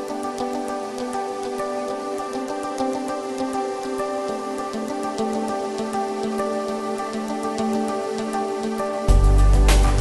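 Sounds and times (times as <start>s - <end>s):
instrumental music with held tones: 0.0s - 10.0s
deep bass layer: 9.1s - 10.0s.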